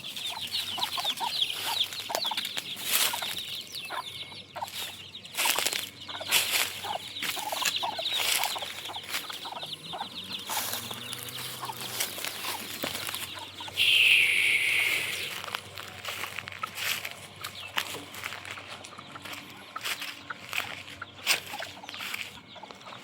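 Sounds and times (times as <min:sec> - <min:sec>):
chickens clucking: 0:00.0 - 0:23.0
chicks cheeping: 0:00.0 - 0:23.0
harsh drawn-out chicken call: 0:05.4 - 0:15.6.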